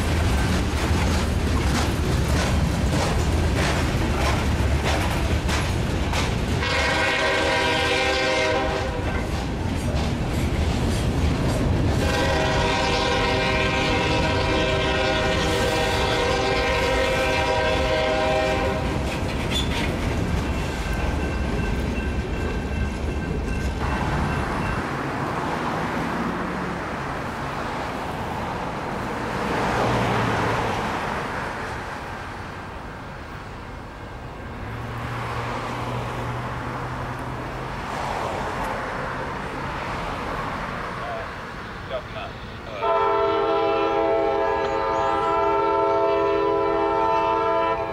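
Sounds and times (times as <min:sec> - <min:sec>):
locomotive engine rumble: 0:00.0 - 0:30.5
train wheels rolling on rails: 0:00.0 - 0:47.9
locomotive horn blast: 0:06.6 - 0:09.2, 0:11.9 - 0:19.0, 0:42.6 - 0:47.9.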